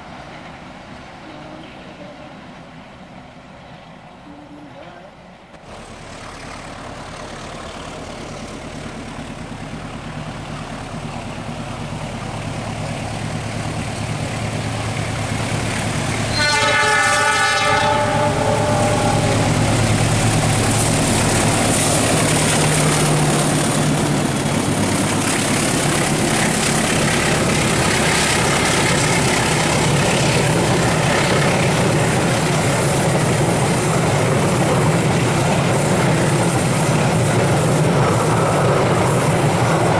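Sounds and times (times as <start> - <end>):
diesel train engine hum: 0.0 - 39.9
train wheel noise: 0.0 - 39.9
train horn blast: 16.3 - 19.6.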